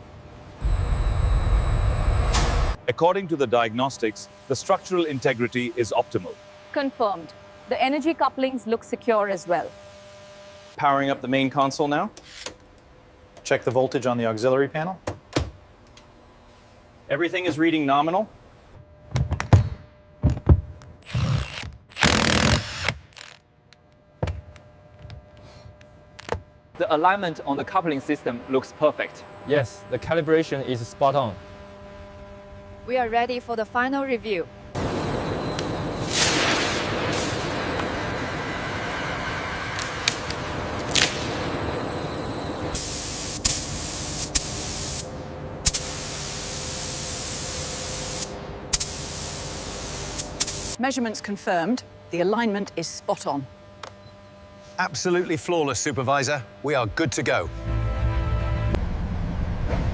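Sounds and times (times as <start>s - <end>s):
tool hissing: 42.7s - 50.8s.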